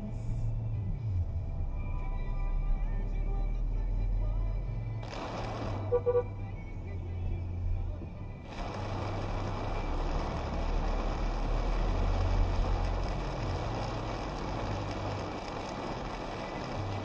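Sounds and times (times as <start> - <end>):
car engine and road rumble: 0.0 - 17.0
rain and wet road hiss: 5.0 - 6.2, 8.4 - 17.0.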